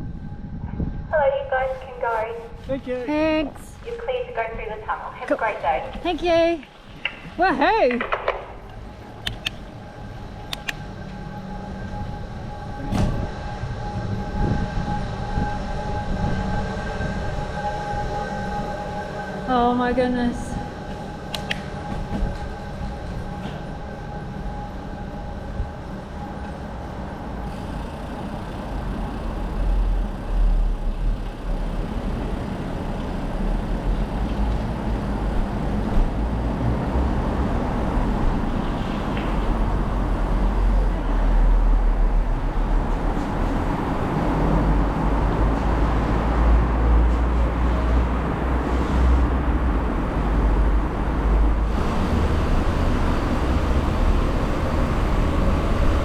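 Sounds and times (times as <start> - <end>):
wind rushing over microphone: 0.0 - 5.2, 8.4 - 27.3
bicycle tyres rolling on road: 5.6 - 56.0.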